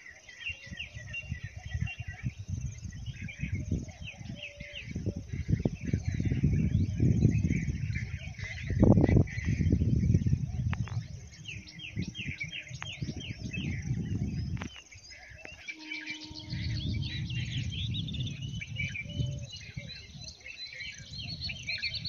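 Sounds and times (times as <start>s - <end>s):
birds chirping and calling: 0.0s - 22.0s
steady hum: 15.6s - 18.6s
low rumble: 15.9s - 19.7s.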